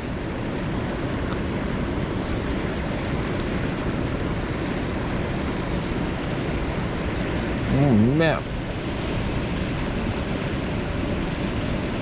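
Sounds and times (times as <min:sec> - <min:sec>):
mountain stream rushing: 0:00.0 - 0:12.0.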